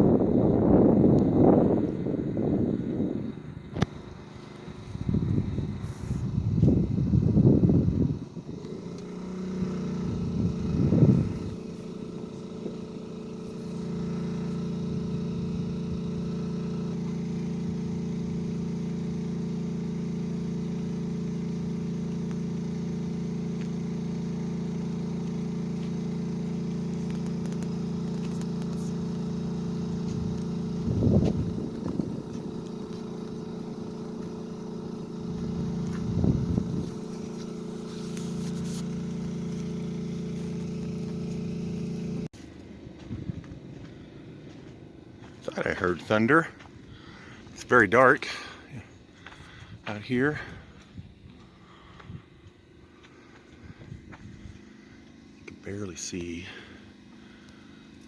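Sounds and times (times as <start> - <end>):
motor humming: 0.0 - 58.0
low rumbles: 9.9 - 16.2, 26.6 - 54.7.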